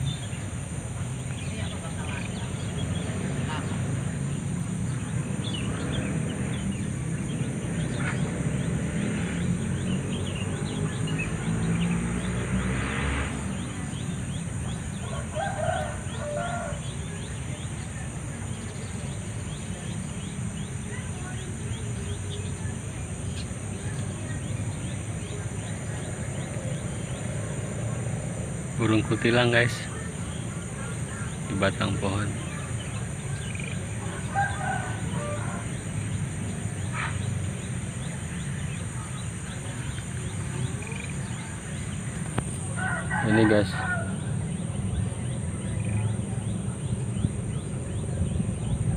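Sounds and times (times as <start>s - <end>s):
high insect drone: 0.0s - 48.9s
bird chirps: 13.5s - 48.9s
distant rooster crowing: 14.9s - 17.2s, 33.4s - 37.2s, 42.6s - 44.7s
constant low rumble: 43.8s - 48.9s.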